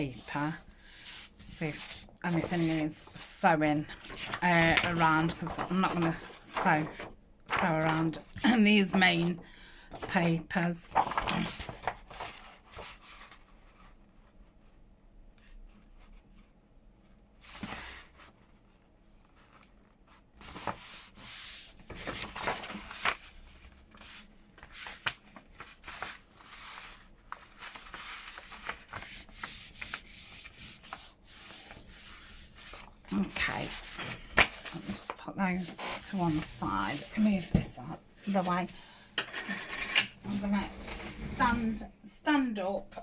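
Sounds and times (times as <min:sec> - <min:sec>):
paper sheets rustling and sliding: 0:00.0 - 0:13.9, 0:17.4 - 0:18.7, 0:19.6 - 0:39.0, 0:40.0 - 0:43.0.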